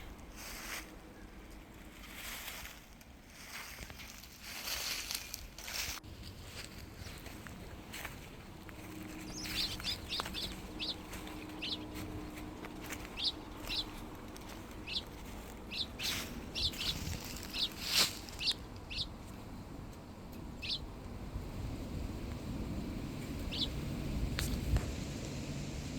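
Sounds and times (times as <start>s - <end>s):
rustling crackles: 0.0s - 20.0s
faint low drone: 3.6s - 25.9s
songbird call notes: 8.8s - 19.3s, 20.4s - 20.9s, 23.3s - 24.0s.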